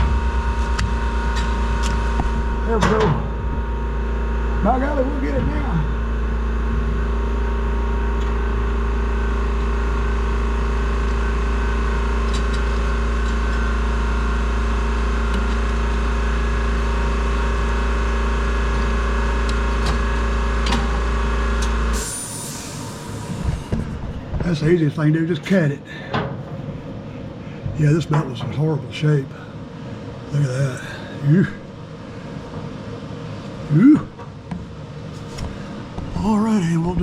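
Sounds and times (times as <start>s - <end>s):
machine droning with deep hum: 0.0s - 37.0s.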